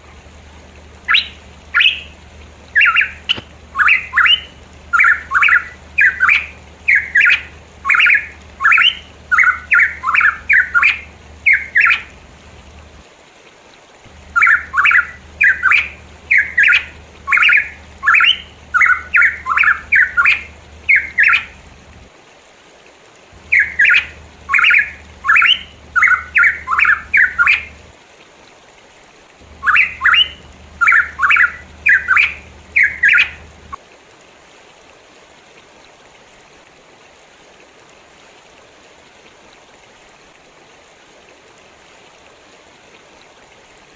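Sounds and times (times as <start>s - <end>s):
bird calling harsh notes: 0.9s - 12.2s, 14.1s - 21.7s, 23.4s - 27.8s, 29.4s - 33.8s.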